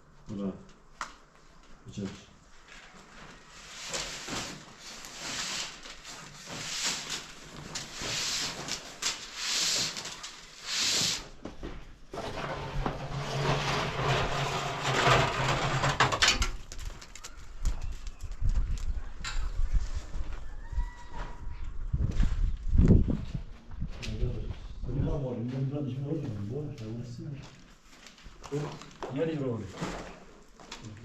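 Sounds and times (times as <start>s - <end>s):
scraping strokes: 3.6s - 11.3s, 12.2s - 16.2s.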